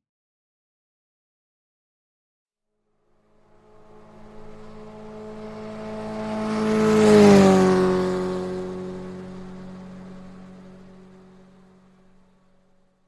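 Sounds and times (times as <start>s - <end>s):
motorcycle passing by: 3.0s - 13.0s.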